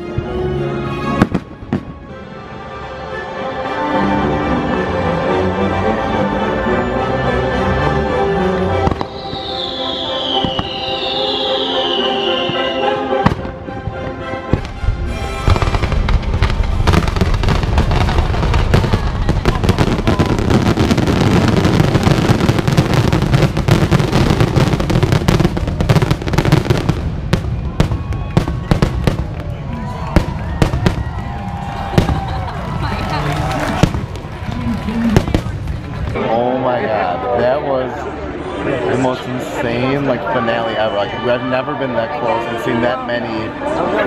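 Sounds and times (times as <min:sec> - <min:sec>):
show music: 0:00.0 - 0:27.0
falling whistle-like glides: 0:09.0 - 0:13.2.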